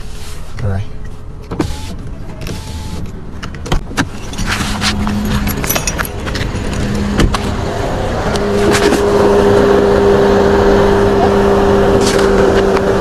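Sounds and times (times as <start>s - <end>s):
engine cooling fan rushing: 4.3s - 13.0s.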